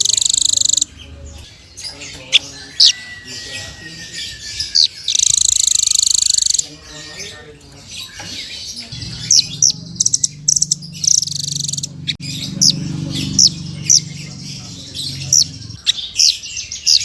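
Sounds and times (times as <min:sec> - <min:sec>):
songbird chirping: 0:00.0 - 0:17.0
steady low hum: 0:08.9 - 0:15.8.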